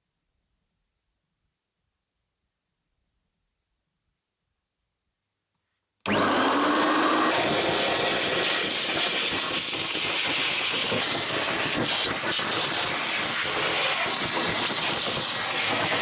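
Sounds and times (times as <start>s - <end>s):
vacuum cleaner suction hiss: 6.1s - 16.0s.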